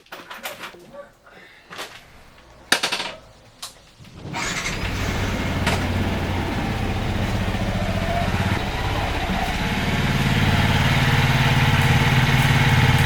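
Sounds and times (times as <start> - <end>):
vehicle engine starting and idling: 3.6 - 13.0.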